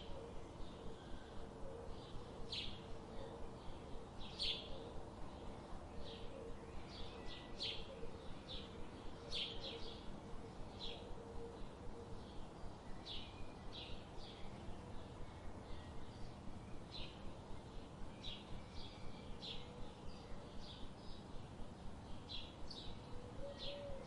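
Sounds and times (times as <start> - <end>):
low background hiss: 0.0 - 24.0.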